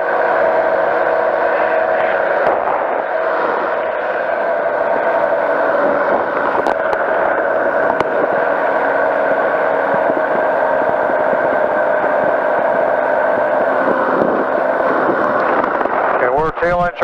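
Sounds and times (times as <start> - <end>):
engine and propeller droning: 0.0 - 17.0.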